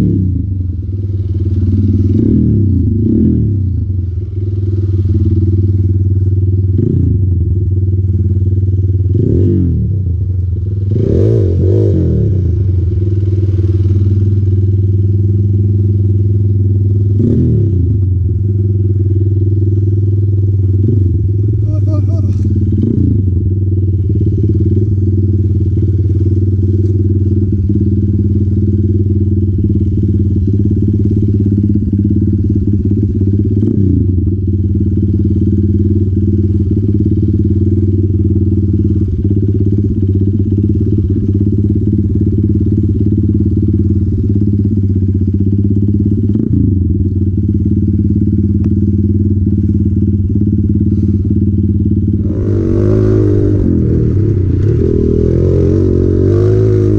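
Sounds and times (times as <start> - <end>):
motorcycle engine running steadily: 0.0 - 56.9.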